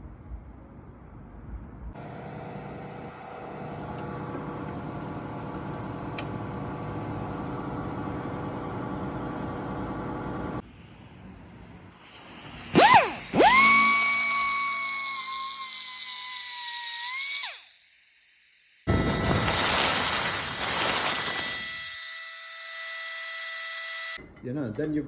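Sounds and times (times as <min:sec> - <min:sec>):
machine hum: 0:01.0 - 0:16.4, 0:17.0 - 0:22.6
power tool whine: 0:02.0 - 0:24.2.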